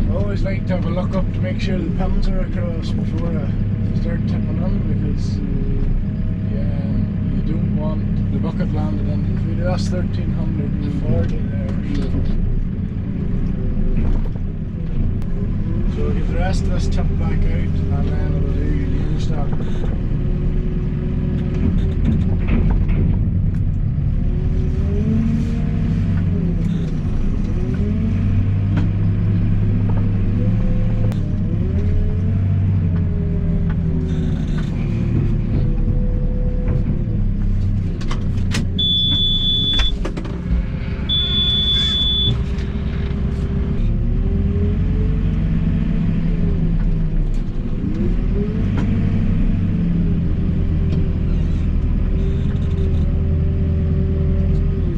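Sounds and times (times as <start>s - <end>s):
diesel loader engine under load: 0.0s - 54.9s
high steady beep: 38.8s - 40.0s, 41.0s - 42.5s.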